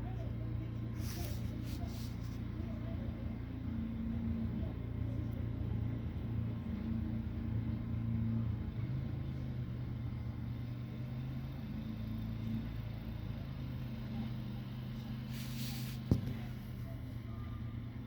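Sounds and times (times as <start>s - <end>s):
engine running with low hum: 0.0s - 18.0s.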